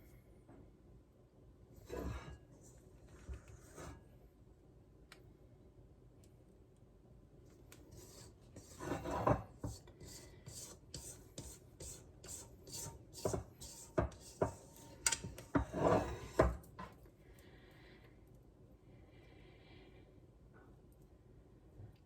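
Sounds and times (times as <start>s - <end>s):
spatula scraping batter in bowl: 1.9s - 2.4s, 7.9s - 16.9s
spatula knocking against bowl: 11.0s - 16.6s.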